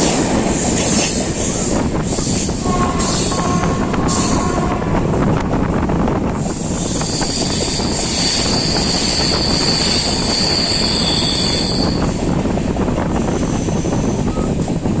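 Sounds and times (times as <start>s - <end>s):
train rumbling over rails: 0.0s - 15.0s
high-pitched wheel squeal: 6.9s - 12.2s.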